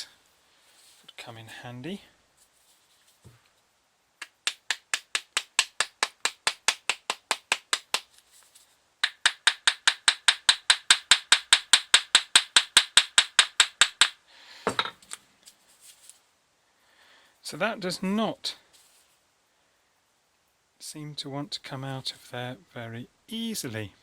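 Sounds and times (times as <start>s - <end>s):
rapid taps on metal bracket: 9.0s - 14.9s.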